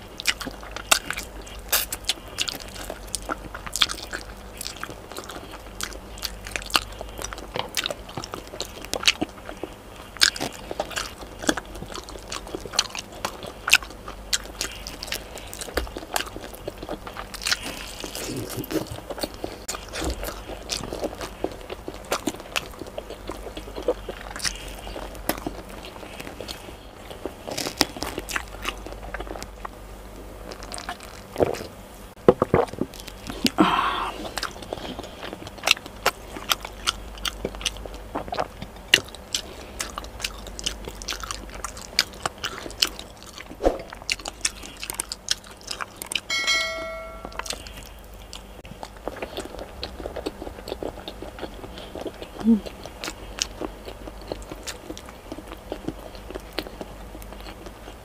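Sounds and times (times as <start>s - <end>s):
chewing and lip smacks: 0.0s - 29.8s, 34.2s - 46.3s, 47.4s - 58.0s
brief ringing tone: 46.3s - 47.6s.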